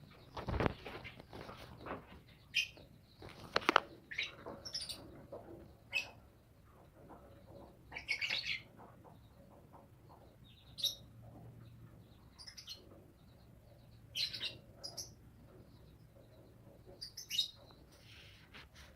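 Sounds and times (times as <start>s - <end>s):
small bird chirping: 0.0s - 18.9s.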